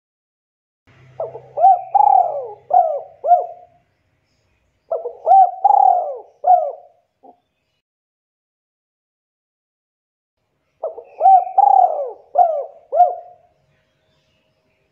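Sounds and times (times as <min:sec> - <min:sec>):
dove cooing: 0:01.2 - 0:03.8, 0:04.9 - 0:07.4, 0:10.8 - 0:13.5.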